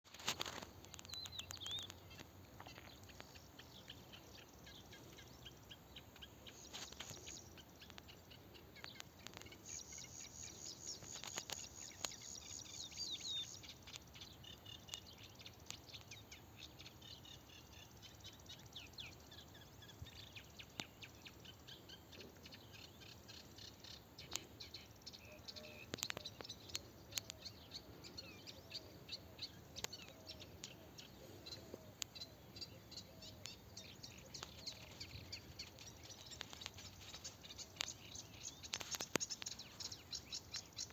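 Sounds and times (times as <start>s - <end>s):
birds chirping: 0.0s - 40.9s
soft clicks: 25.9s - 27.5s.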